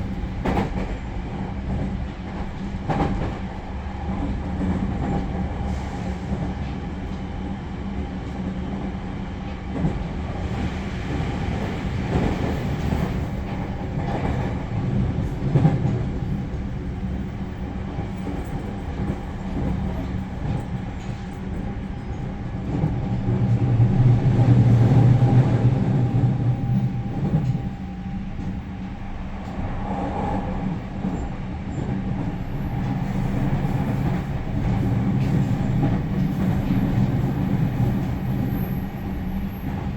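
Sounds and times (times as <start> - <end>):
clickety-clack of wheels: 0.0 - 39.9
train wheels rumbling on rail: 0.0 - 39.9.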